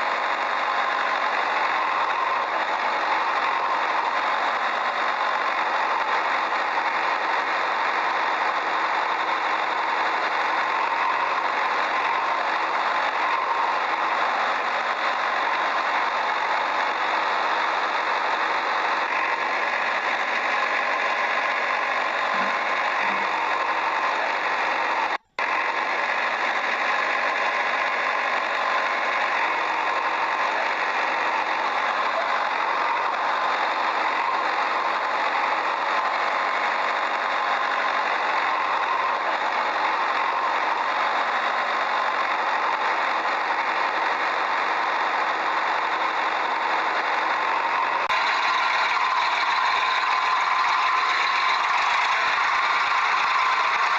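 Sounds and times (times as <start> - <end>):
engine running steadily: 0.0 - 53.9.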